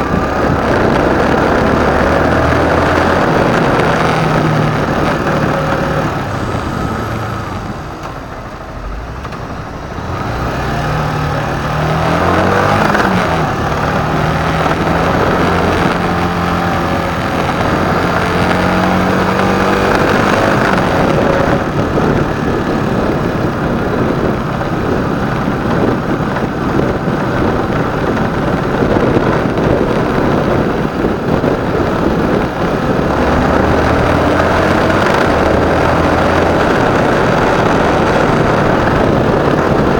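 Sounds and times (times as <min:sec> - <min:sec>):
motorcycle engine running: 0:00.0 - 0:39.9
rush of traffic noise: 0:00.0 - 0:39.9.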